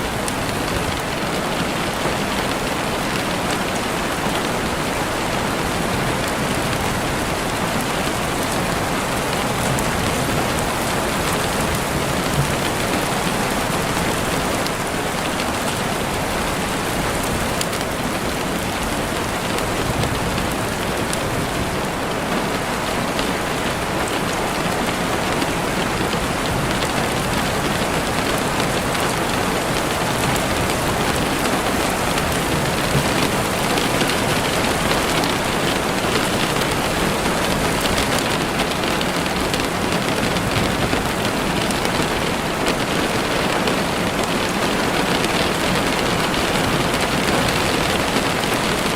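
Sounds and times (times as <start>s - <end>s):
steady rain falling: 0.0s - 48.9s.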